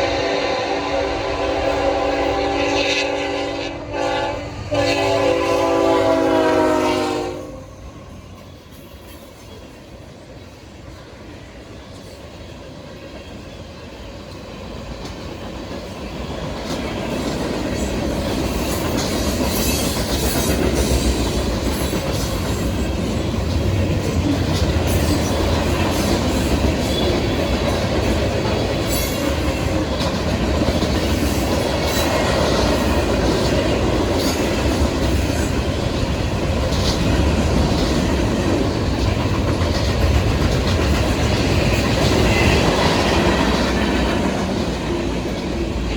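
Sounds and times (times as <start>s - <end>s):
freight train rumbling past: 0.0s - 45.9s
wheels clicking over rail joints: 12.9s - 45.9s
train wheel squeals: 16.1s - 23.3s, 24.8s - 35.6s.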